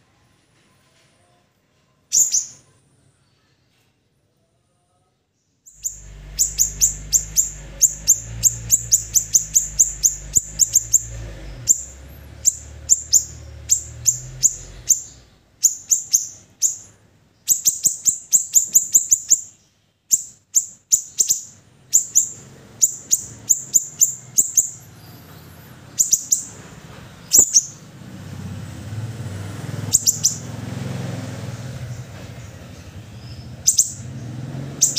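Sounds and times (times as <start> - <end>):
bird chirping rapidly: 2.1 - 2.6, 5.7 - 28.0, 29.7 - 34.9
low hum: 5.8 - 15.5.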